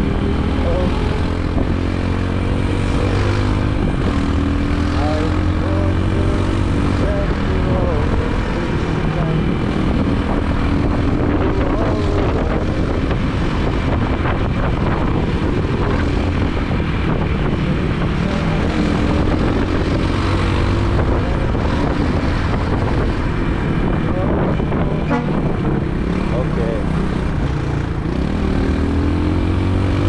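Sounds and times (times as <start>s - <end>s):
motorbike engine running: 0.0s - 30.0s
road and wind noise: 0.0s - 30.0s.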